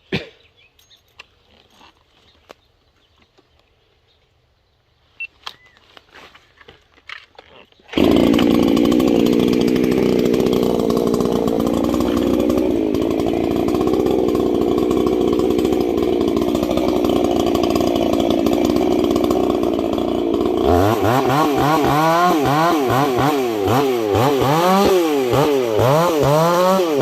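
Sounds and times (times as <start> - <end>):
chainsaw cutting and revving: 7.9 - 27.0.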